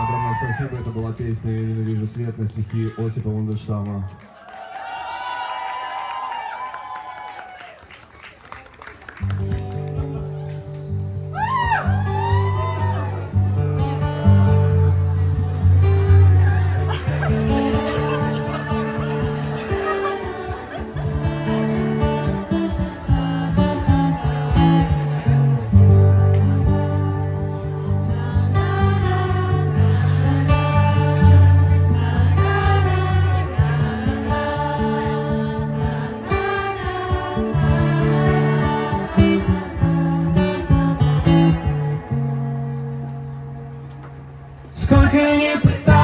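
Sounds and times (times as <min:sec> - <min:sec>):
acoustic guitar plucked and strummed: 0:09.2 - 0:46.0.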